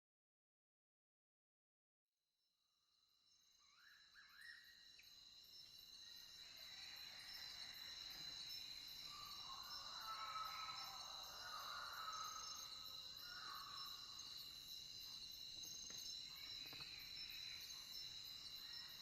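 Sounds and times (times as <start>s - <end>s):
crickets trilling: 3.2s - 19.0s.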